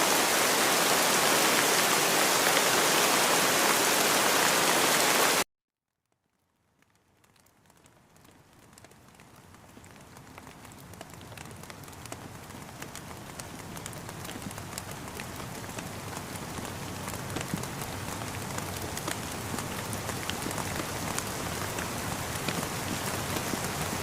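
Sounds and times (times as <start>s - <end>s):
rain falling: 0.0s - 5.4s, 6.2s - 24.0s
raindrops tapping: 6.2s - 24.0s.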